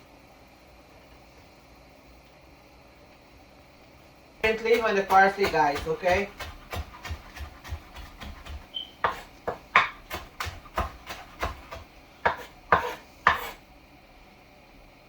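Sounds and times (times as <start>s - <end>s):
knife chopping on wooden board: 4.4s - 13.6s.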